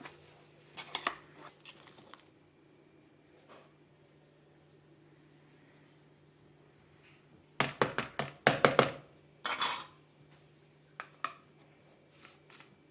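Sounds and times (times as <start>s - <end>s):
kitchenware clinking and knocking: 7.6s - 10.0s
kitchenware rattle: 9.4s - 10.0s.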